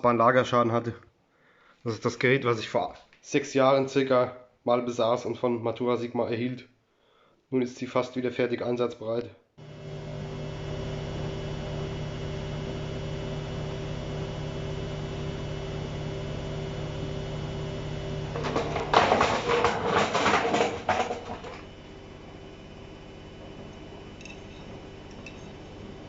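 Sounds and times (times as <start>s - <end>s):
washing machine humming: 9.6s - 26.0s
washing machine rattling: 18.2s - 21.7s.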